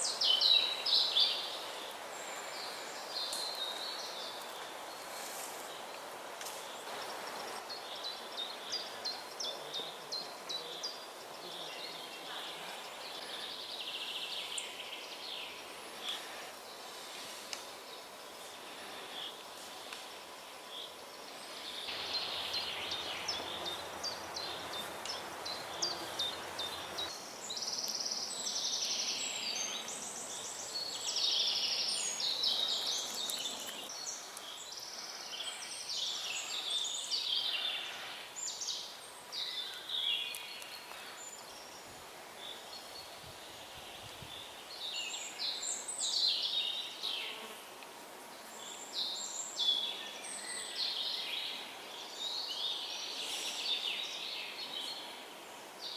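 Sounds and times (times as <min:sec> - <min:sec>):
faint steady hiss: 0:00.0 - 0:55.9
birds singing and calling: 0:20.7 - 0:47.5, 0:48.4 - 0:55.9.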